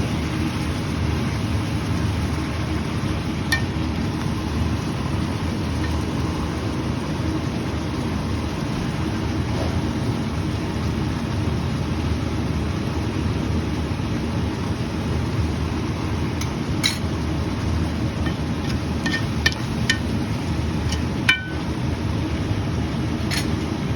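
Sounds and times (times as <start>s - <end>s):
metal utensil knocking cookware: 16.4s - 17.1s, 18.2s - 20.2s, 20.8s - 21.7s, 23.3s - 23.6s.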